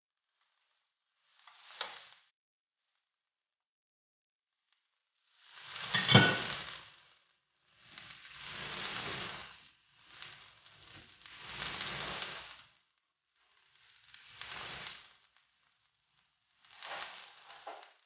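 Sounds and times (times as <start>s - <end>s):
chicken sizzling in oil: 1.2s - 2.3s, 5.2s - 18.0s.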